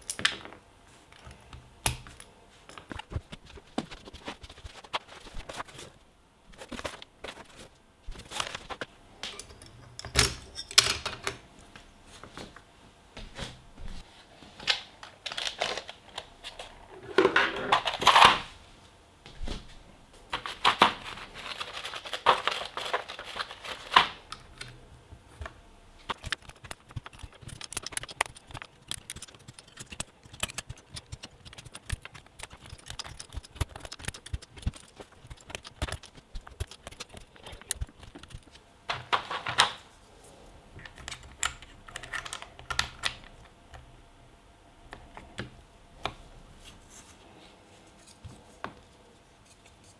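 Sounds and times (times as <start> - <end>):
typing on mechanical keyboard: 20.4 - 24.7, 26.1 - 39.8, 40.8 - 43.9.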